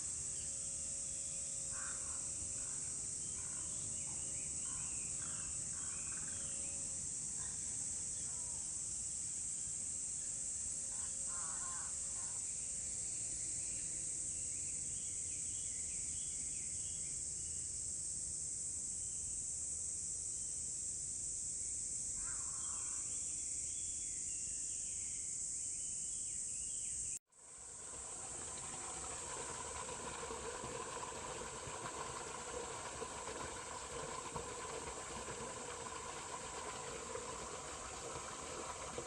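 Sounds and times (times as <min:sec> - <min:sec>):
high-pitched insect drone: 0:00.0 - 0:14.7
crow cawing: 0:01.7 - 0:02.8.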